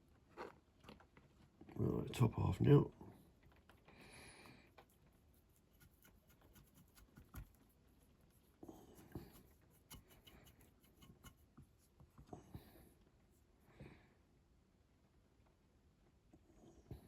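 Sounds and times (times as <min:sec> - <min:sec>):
faint scratching: 0:04.5 - 0:13.6.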